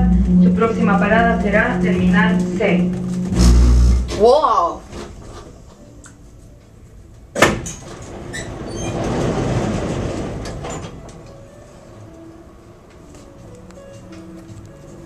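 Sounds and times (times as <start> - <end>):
train rushing rumble: 0.0 - 4.1, 7.9 - 13.4
loud clunk: 7.4 - 11.3.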